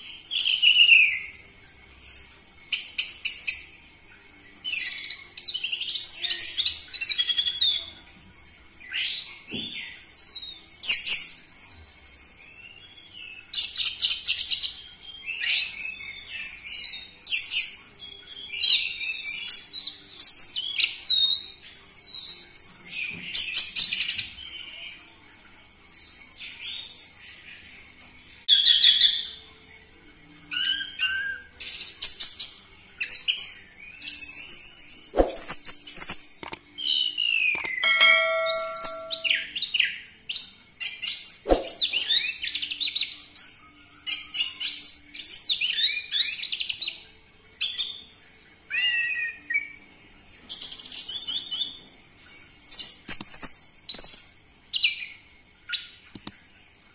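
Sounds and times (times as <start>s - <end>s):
thrush singing whistles and trills: 37.0s - 39.6s.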